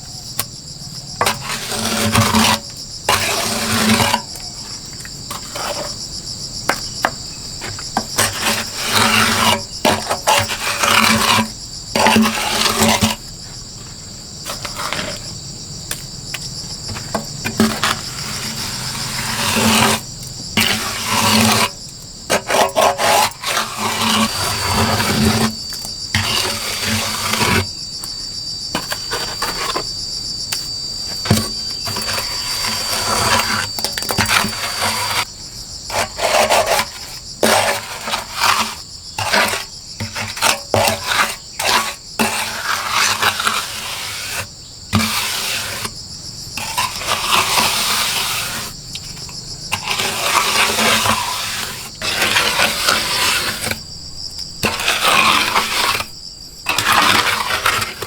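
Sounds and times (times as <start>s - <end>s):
insects chirring: 0.0s - 58.0s
handling noises: 9.8s - 20.8s.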